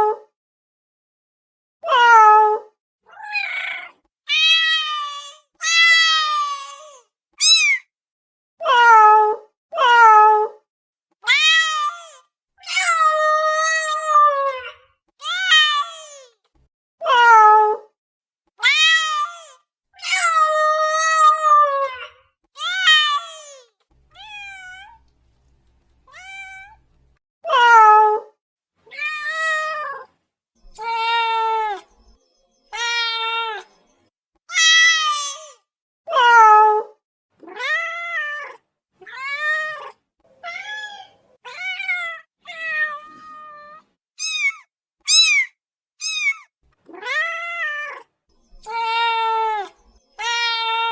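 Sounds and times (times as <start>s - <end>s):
cat meowing: 3.1s - 7.9s, 11.2s - 16.3s, 18.6s - 25.0s, 26.1s - 26.8s, 28.9s - 30.1s, 30.7s - 31.9s, 32.7s - 33.7s, 34.5s - 36.8s, 37.5s - 50.9s.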